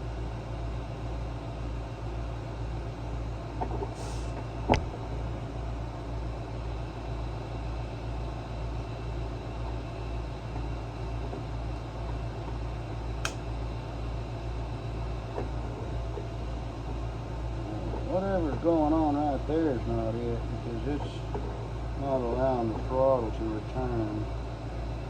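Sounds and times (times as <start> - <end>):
low mechanical hum pulsing: 0.0 - 25.0
sharp click: 13.2 - 13.4.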